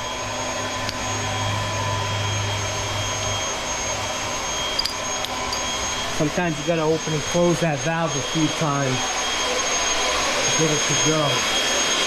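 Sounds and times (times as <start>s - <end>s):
electric pump whining: 0.0s - 12.0s.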